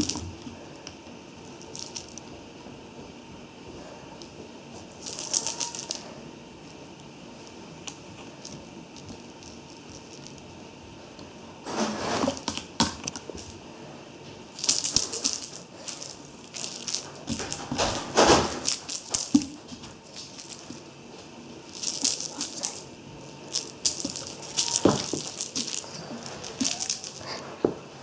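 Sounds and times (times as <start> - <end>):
rustling and crinkling: 0.0 - 28.0.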